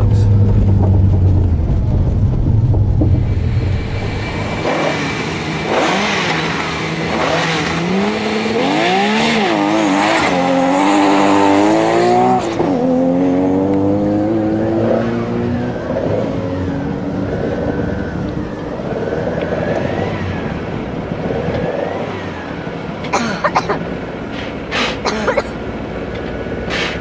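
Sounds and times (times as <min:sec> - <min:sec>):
car engine idling: 0:00.0 - 0:08.5
car accelerating hard: 0:00.0 - 0:23.2.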